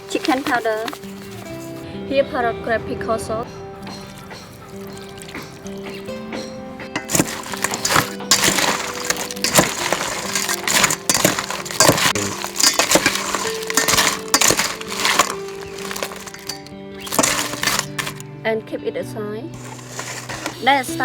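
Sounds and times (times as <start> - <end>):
background music: 0.0 - 21.0
utensil clinking against dish: 3.8 - 18.2, 19.6 - 20.8
utensil scraping dish: 7.0 - 18.2, 19.6 - 21.0.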